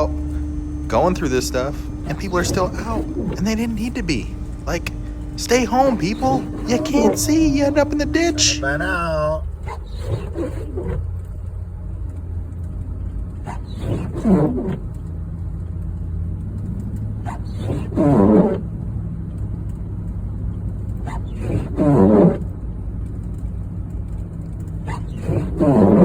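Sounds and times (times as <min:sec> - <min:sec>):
loud groaning sliding down in pitch: 0:00.0 - 0:09.5
vehicle engine hum: 0:00.0 - 0:26.0.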